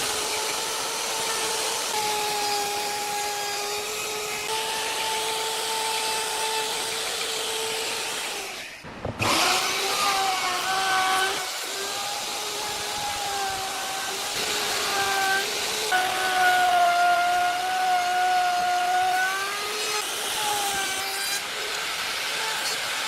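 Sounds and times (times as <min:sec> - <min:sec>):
power tool motor whining: 0:00.0 - 0:23.0.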